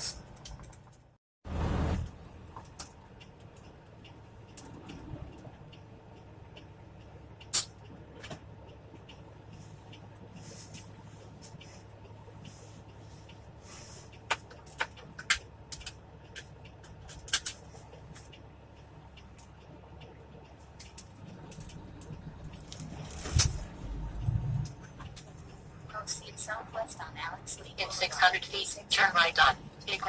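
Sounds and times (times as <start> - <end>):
truck engine low hum: 0.0 - 30.0
sharp clicks and knocks: 14.1 - 18.4.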